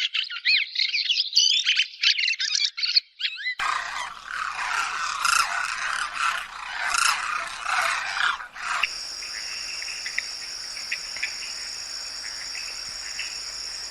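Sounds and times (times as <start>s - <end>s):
chorus of animal calls: 3.6s - 13.9s
high-pitched insect trill: 3.6s - 13.9s.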